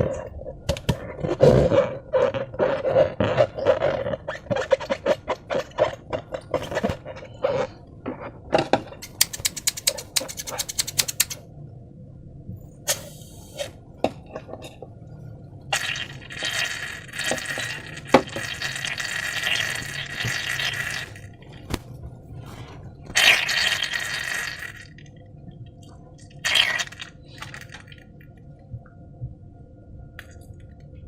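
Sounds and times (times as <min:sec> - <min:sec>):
sharp clicks: 0:09.0 - 0:11.4.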